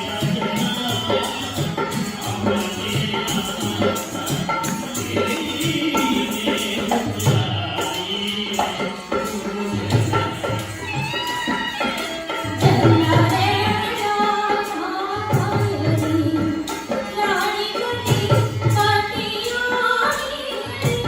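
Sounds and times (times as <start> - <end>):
hand drums: 0.0 - 21.0.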